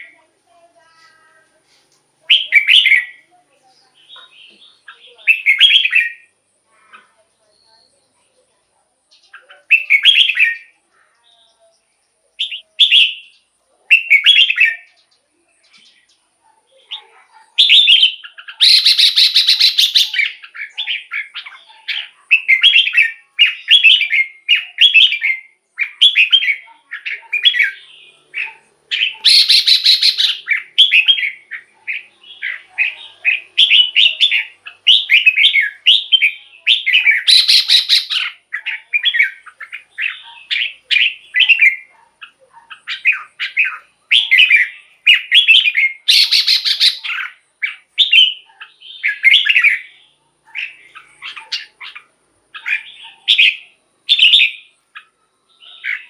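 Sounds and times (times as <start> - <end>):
bird singing warbled phrases: 0.0 - 56.0
harsh rasping bird call: 17.6 - 21.4, 27.3 - 41.9, 42.8 - 49.6.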